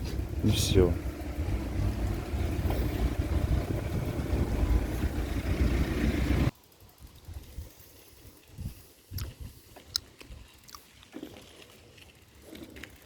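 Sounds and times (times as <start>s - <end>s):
wind buffeting microphone: 0.0s - 7.8s, 8.4s - 9.7s.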